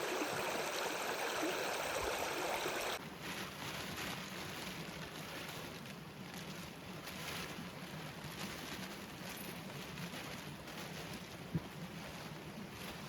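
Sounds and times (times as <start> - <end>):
stream water rushing: 0.0 - 3.0.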